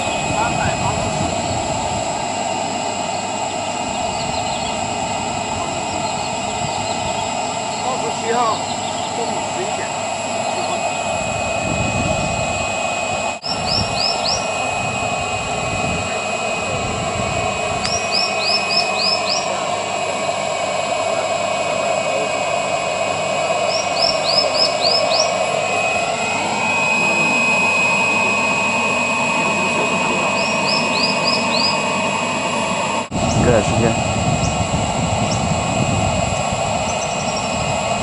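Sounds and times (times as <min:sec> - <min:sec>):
mechanical drone: 0:00.0 - 0:38.0
thin high whine: 0:00.0 - 0:38.0
bird singing descending notes: 0:02.9 - 0:11.1, 0:13.4 - 0:15.2, 0:17.8 - 0:20.4, 0:23.5 - 0:33.5, 0:36.8 - 0:37.8.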